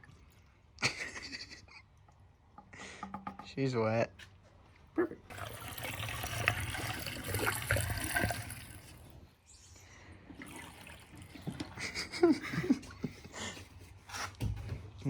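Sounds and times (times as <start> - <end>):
liquid trickling and splashing: 5.3 - 9.4, 10.0 - 13.0.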